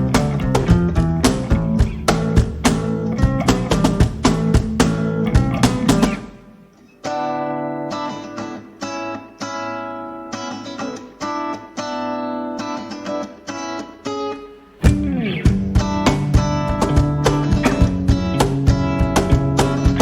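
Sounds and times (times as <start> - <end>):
band playing a song: 0.0 - 6.3, 14.8 - 20.0
guitar strumming ringing chords: 0.0 - 20.0.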